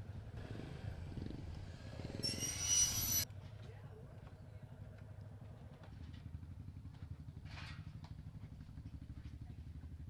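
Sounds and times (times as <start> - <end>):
motorcycle engine idling: 3.3 - 10.0.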